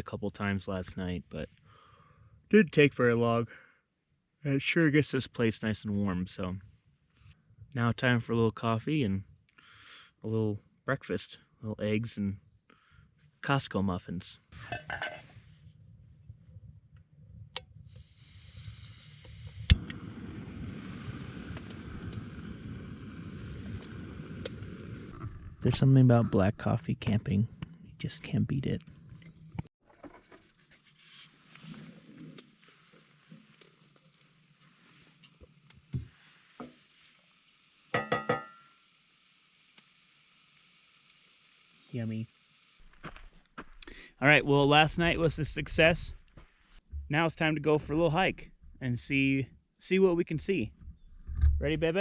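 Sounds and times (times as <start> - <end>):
gas hissing from burner: 17.8 - 25.2, 33.8 - 42.8
gas flame rushing: 17.8 - 25.8.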